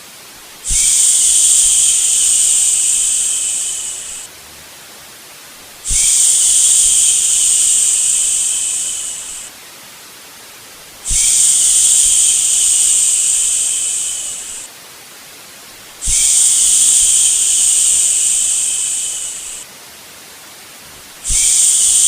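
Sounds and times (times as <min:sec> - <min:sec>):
white noise hiss: 0:00.0 - 0:22.0
person shushing: 0:00.7 - 0:04.3, 0:05.9 - 0:09.5, 0:11.1 - 0:14.7, 0:16.0 - 0:19.6, 0:21.2 - 0:22.0.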